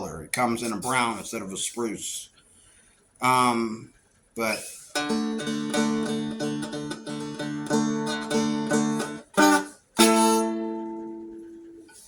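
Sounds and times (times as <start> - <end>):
dulcimer strumming: 4.9 - 12.0.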